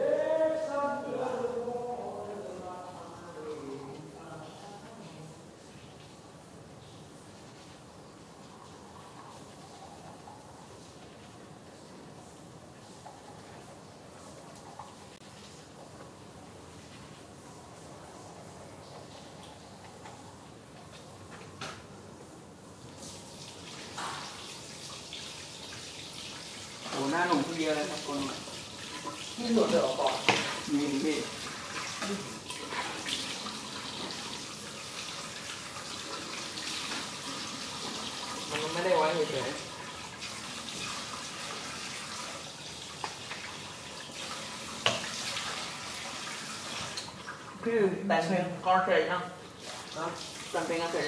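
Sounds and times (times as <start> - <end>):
tap water running into sink: 23.0 - 47.6.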